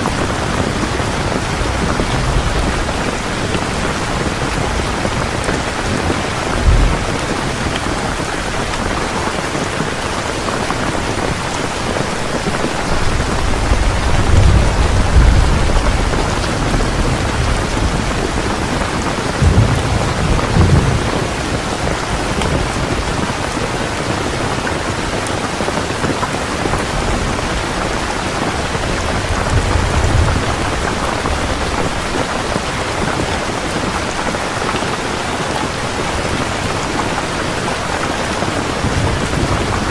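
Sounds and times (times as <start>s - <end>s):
heavy rain pouring: 0.0s - 39.9s
thunder rolling: 0.1s - 9.4s, 12.8s - 23.3s, 26.7s - 33.1s.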